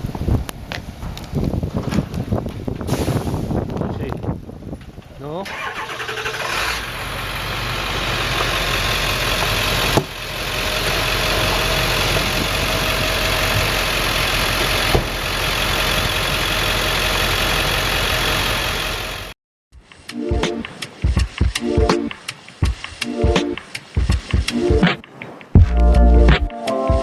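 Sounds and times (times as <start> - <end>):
car engine running: 6.4 - 19.3.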